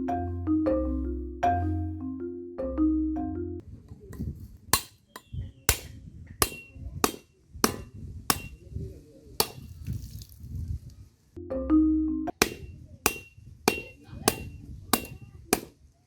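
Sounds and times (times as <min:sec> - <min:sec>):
metal blade striking coconut: 0:04.8 - 0:08.8, 0:09.4 - 0:10.0, 0:12.4 - 0:15.8.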